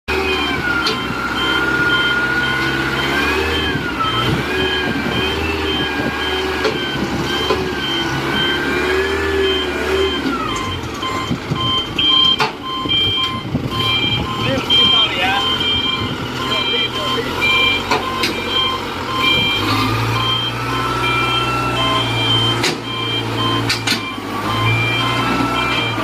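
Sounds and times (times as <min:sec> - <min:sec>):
forklift engine running: 0:00.1 - 0:26.0
lower beep: 0:00.1 - 0:26.0
reversing alarm beeping: 0:00.1 - 0:26.0.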